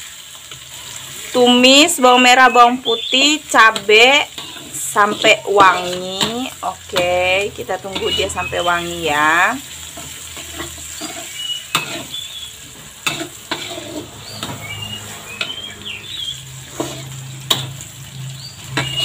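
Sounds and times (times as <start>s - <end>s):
shallots sizzling in hot oil: 0.0s - 19.0s
metal spatula scraping a wok: 3.5s - 19.0s
spatula clacking against a wok: 3.7s - 7.2s, 9.9s - 12.2s, 12.8s - 14.6s, 16.7s - 17.9s, 18.6s - 19.0s.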